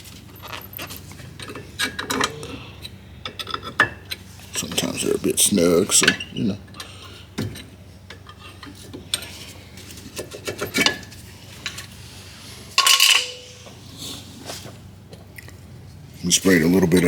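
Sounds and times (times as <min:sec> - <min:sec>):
metal tools clinking: 0:00.0 - 0:05.2, 0:12.6 - 0:14.0
loud ringing metallic clank: 0:12.8 - 0:13.8.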